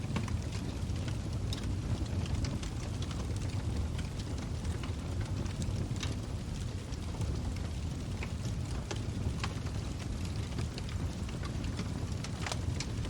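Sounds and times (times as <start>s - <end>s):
log fire crackling and popping: 0.0s - 13.0s
low rumble of flames: 0.0s - 13.0s.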